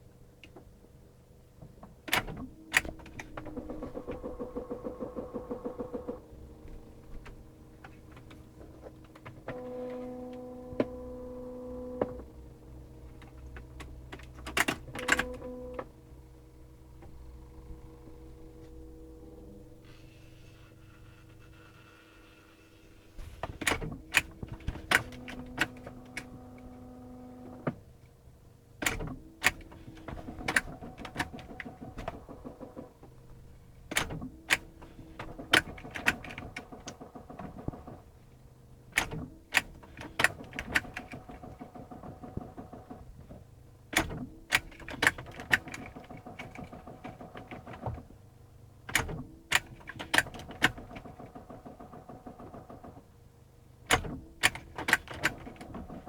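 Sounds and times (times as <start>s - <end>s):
steady electric humming: 9.5s - 21.5s.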